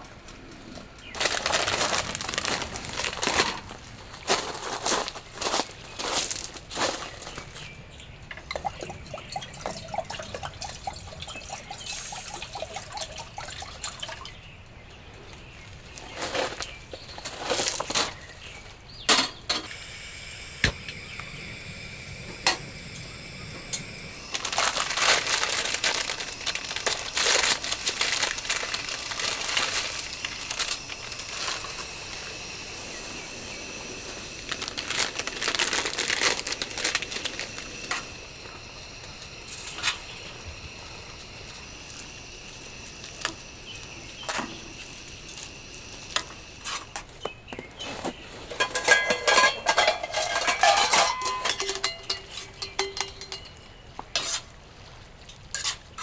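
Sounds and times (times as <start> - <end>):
rustling and crinkling: 0.0 - 7.8, 15.2 - 18.8, 24.3 - 32.4, 34.0 - 38.6, 46.6 - 53.5.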